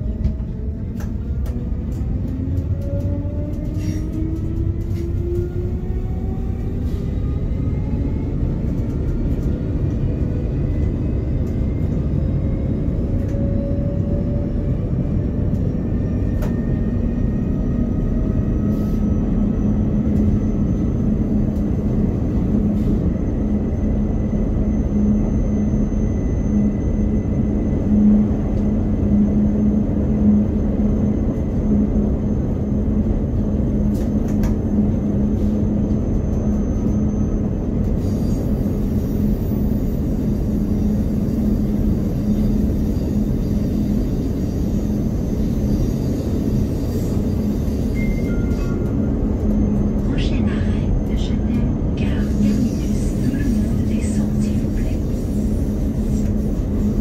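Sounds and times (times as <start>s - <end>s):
train wheels rumbling on track: 0.0s - 57.0s
train whine: 0.0s - 57.0s.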